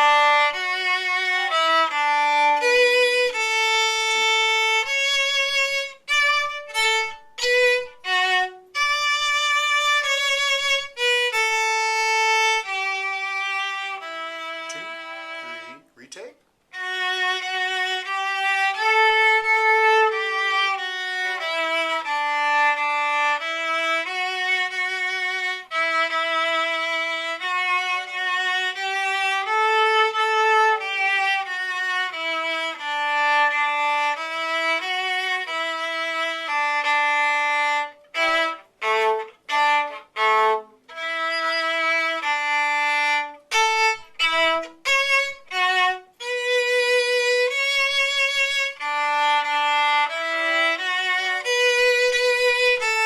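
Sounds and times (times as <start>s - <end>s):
solo viola melody: 0.0s - 53.0s.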